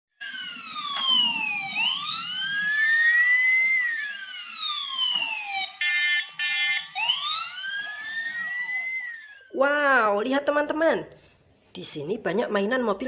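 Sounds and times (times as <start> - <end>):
emergency sirens wailing: 0.2 - 9.6.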